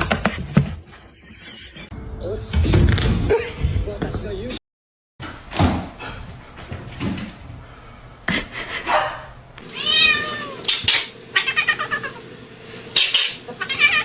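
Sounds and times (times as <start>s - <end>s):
cat meowing: 9.7s - 12.2s, 13.6s - 14.0s.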